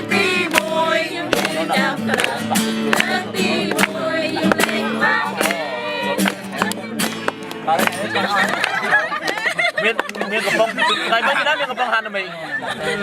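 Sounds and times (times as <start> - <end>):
people singing along: 0.0 - 7.0
acoustic guitar strummed: 0.0 - 9.0.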